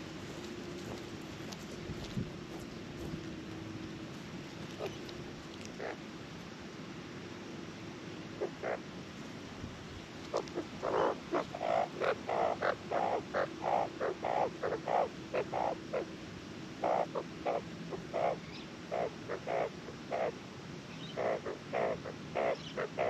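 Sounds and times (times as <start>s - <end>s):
magpie calling croaky notes: 4.7s - 6.0s, 8.4s - 8.8s, 10.3s - 16.1s, 16.8s - 20.4s, 21.0s - 23.0s.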